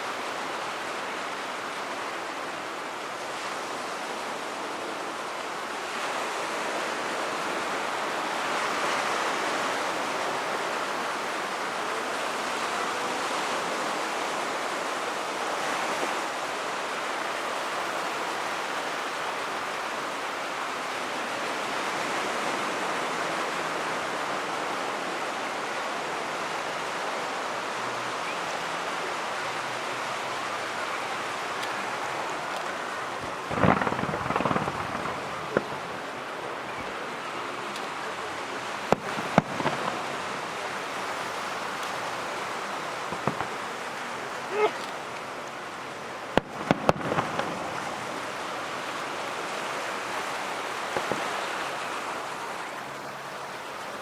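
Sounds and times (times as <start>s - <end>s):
steady rushing noise: 30.6s - 36.8s
firework bangs: 33.2s - 36.1s, 38.9s - 40.5s, 43.0s - 44.8s, 46.4s - 48.3s, 50.9s - 51.5s.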